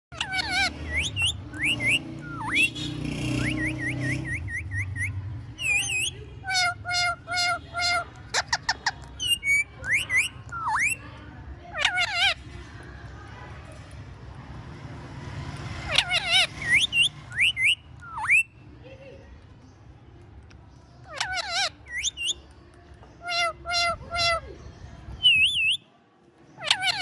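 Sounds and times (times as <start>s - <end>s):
parrot chirping and whistling: 0.2s - 11.0s, 15.9s - 18.6s, 21.2s - 22.4s, 25.2s - 25.8s.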